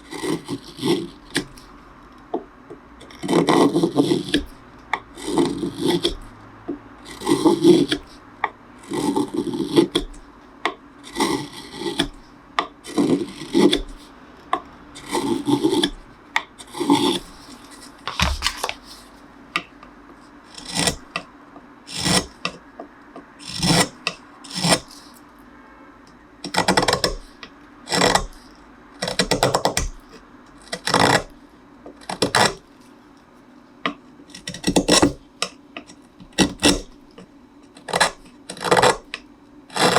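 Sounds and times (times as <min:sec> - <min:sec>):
hand tool scraping wood: 0:00.1 - 0:01.7, 0:03.0 - 0:04.5, 0:05.2 - 0:06.2, 0:07.0 - 0:08.2, 0:11.0 - 0:12.2, 0:12.8 - 0:14.1, 0:16.6 - 0:19.0, 0:20.5 - 0:21.2, 0:21.9 - 0:22.6.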